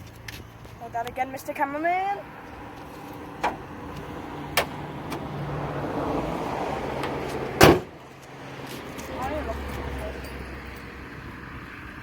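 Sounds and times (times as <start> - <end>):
car bonnet slamming shut: 3.4 - 3.7, 4.5 - 5.3, 7.0 - 8.0.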